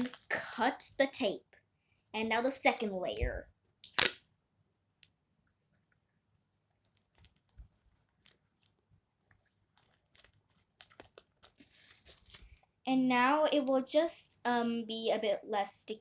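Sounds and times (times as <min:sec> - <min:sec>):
sticky tape and paper crinkling: 0:02.7 - 0:04.2, 0:09.8 - 0:12.6.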